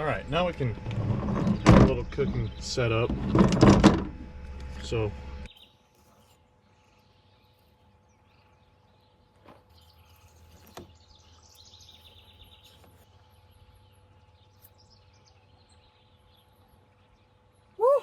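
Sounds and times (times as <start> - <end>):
bird chirping trill: 4.8 - 18.0.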